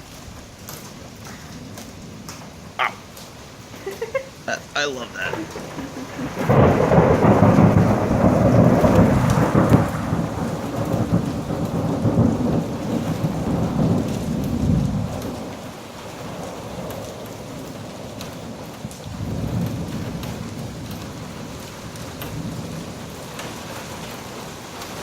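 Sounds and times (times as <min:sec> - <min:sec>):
steady rain: 0:00.0 - 0:25.0
thunder rumble: 0:00.0 - 0:25.0.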